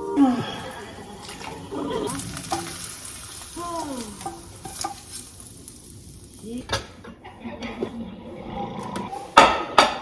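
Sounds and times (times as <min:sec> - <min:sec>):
food sizzling in a frying pan: 0:00.3 - 0:07.9
utensil clicking on pan: 0:04.0 - 0:05.3.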